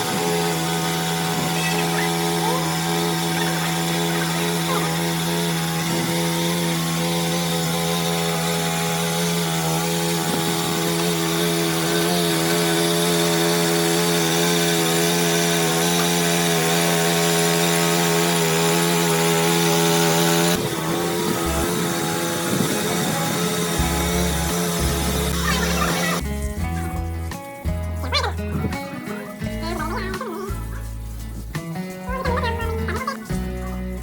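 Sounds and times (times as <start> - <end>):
power tool motor whining: 0.0 - 26.8.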